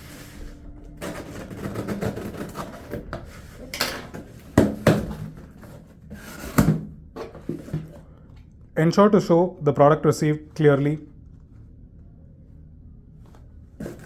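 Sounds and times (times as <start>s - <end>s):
packaging rustling and scraping: 0.0s - 8.2s, 13.3s - 14.0s.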